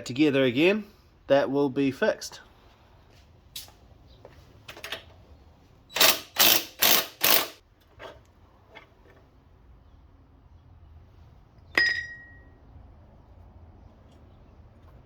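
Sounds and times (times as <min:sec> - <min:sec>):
rasping bursts: 0:06.0 - 0:07.6.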